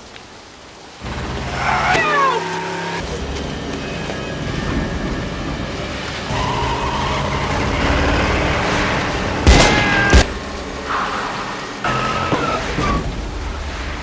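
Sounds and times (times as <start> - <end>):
tyres skidding: 0.8 - 14.0
car engine revving: 6.2 - 14.0.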